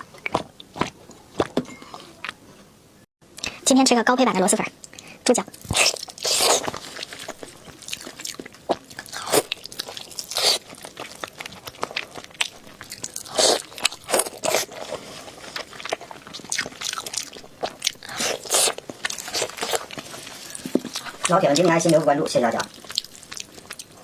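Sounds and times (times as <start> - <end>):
crunchy bites and chewing: 5.5 - 22.0.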